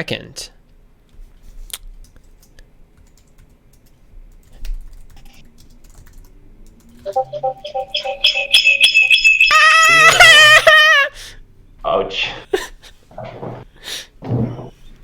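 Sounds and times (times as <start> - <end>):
music with steady tones: 7.1 - 10.0.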